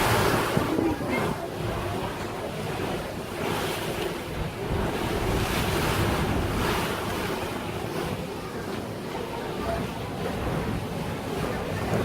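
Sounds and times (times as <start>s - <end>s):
wind buffeting microphone: 0.0s - 7.4s
water rushing past boat: 0.0s - 12.0s.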